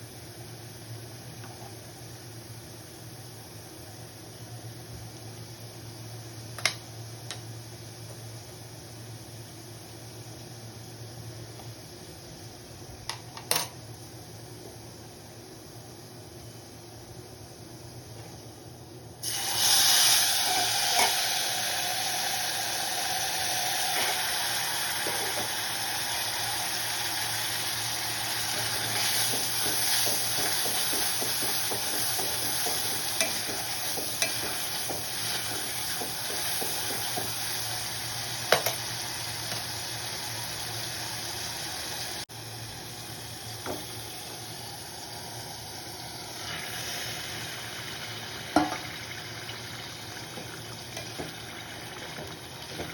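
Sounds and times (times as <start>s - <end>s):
food sizzling in hot oil: 19.2s - 52.9s.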